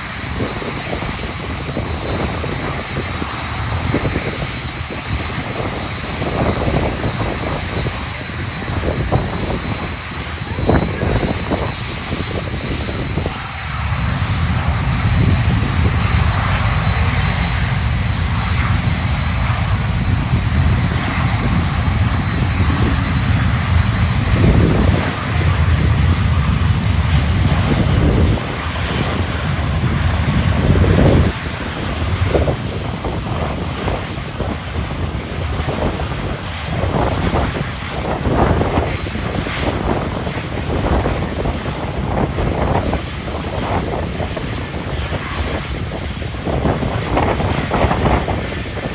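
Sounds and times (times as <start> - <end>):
jet engines whining: 0.0 - 48.9
wind rumbling on microphone: 0.0 - 48.9.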